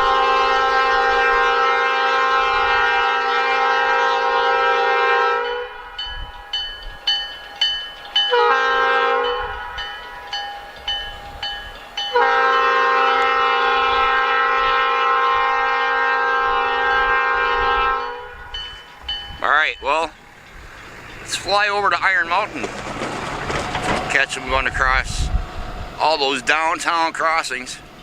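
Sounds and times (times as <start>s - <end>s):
locomotive air horn blasts: 0.0s - 6.0s, 8.3s - 9.9s, 12.1s - 18.7s
railroad crossing bell ringing: 3.6s - 22.5s.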